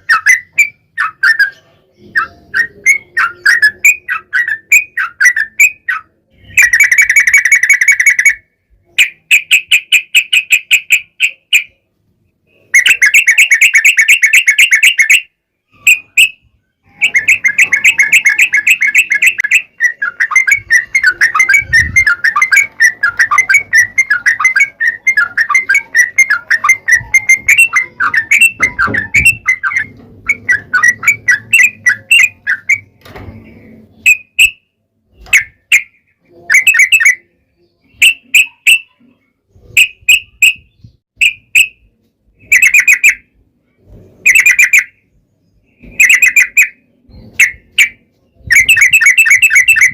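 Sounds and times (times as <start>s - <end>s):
bird chattering trill: 0.0s - 11.9s, 12.5s - 33.0s, 35.2s - 39.1s, 39.7s - 43.4s, 44.3s - 45.0s, 45.8s - 49.9s.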